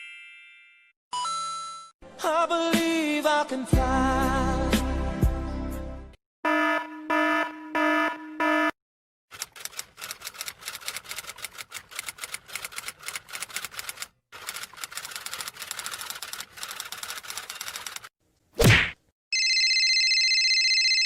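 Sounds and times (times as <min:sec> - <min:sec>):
electronic alarm beeps: 0:06.5 - 0:08.8
typewriter keys clacking: 0:09.3 - 0:18.1.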